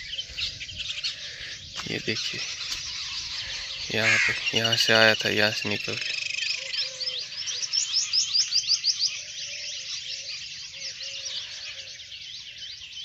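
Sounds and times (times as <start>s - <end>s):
high upward-sweeping bird chirps: 1.6s - 11.4s.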